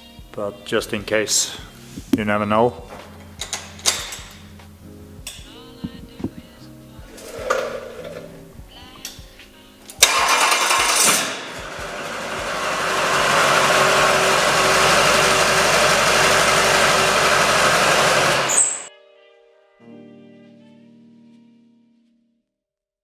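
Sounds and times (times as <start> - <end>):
diesel engine starting and running: 7.1 - 8.7, 10.0 - 18.9.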